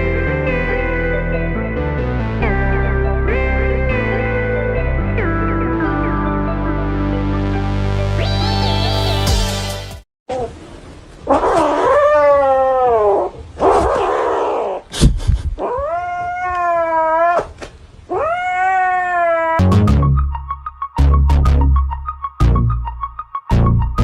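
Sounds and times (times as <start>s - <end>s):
electronic music: 1.8s - 10.0s, 19.6s - 24.0s
cat yowling: 11.3s - 14.8s, 15.6s - 19.7s.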